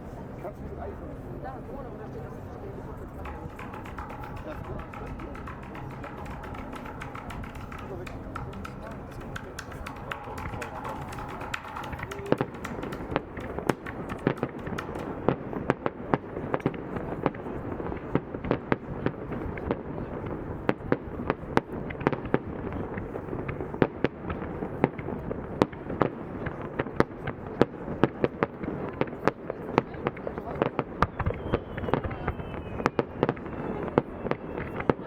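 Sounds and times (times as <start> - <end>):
rumble of bursting shells: 3.1 - 15.8
fireworks bangs and cracks: 3.1 - 35.0.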